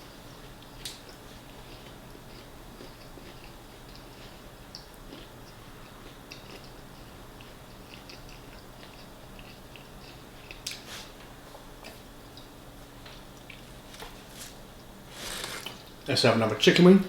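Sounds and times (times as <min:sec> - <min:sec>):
person chewing fried food: 0:00.3 - 0:11.0, 0:13.4 - 0:15.9.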